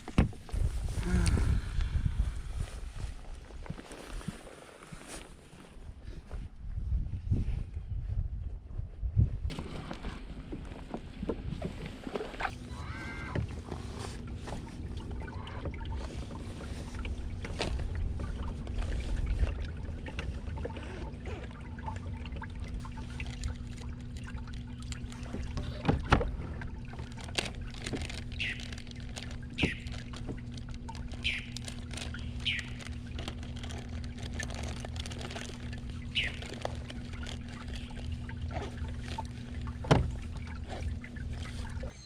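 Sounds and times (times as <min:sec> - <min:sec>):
steady low hum: 0:09.0 - 0:42.0
falling bird calls: 0:28.3 - 0:28.8, 0:29.6 - 0:29.9, 0:31.2 - 0:31.6, 0:32.2 - 0:32.8, 0:36.0 - 0:36.5.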